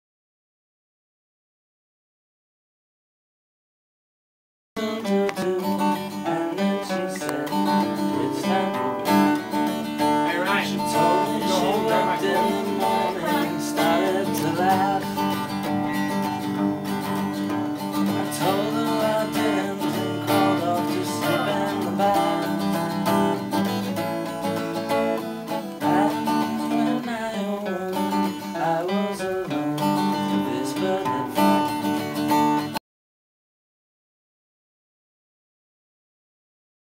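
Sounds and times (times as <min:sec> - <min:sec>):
acoustic guitar music: 0:04.8 - 0:32.8.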